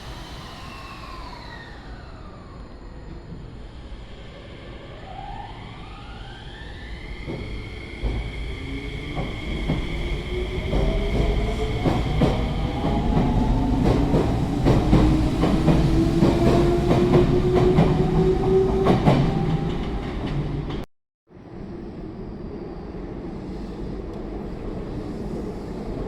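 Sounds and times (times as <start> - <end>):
rising whine: 0.0 - 3.6
train rumbling on rails: 0.0 - 26.0.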